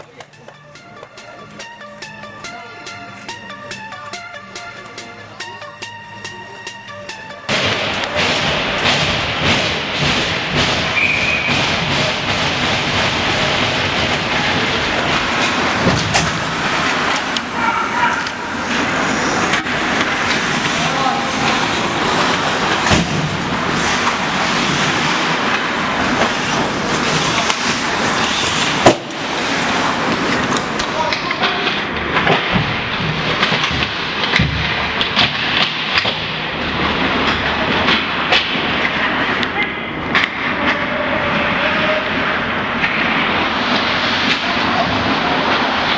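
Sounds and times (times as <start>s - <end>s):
crowd: 39.4s - 42.6s.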